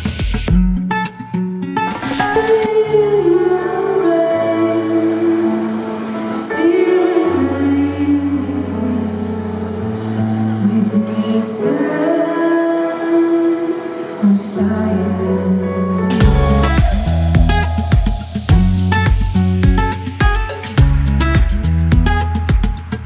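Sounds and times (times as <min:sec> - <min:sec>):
bass: 0:00.0 - 0:00.8, 0:15.2 - 0:23.0
guitar: 0:00.0 - 0:23.0
woman singing slow song: 0:02.4 - 0:19.0.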